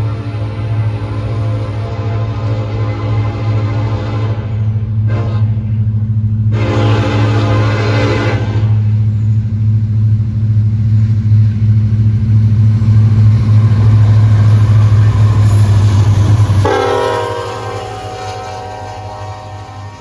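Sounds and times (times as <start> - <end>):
locomotive horn: 0.0 - 5.9, 6.5 - 9.0, 13.8 - 20.0
locomotive engine drone: 0.0 - 20.0.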